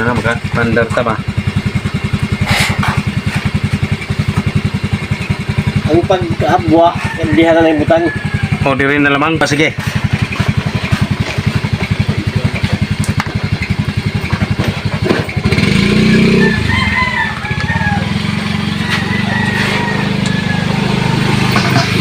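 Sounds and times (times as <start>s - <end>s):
engine chugging: 0.0s - 22.0s
rooster crowing: 6.4s - 9.2s, 15.6s - 22.0s.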